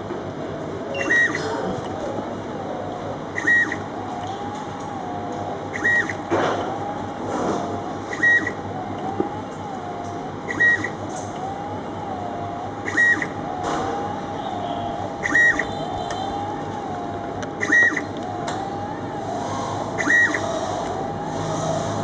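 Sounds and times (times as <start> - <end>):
low machine hum: 0.0 - 22.0
steady wavering tone: 0.0 - 22.0
short electronic beep: 0.9 - 1.5.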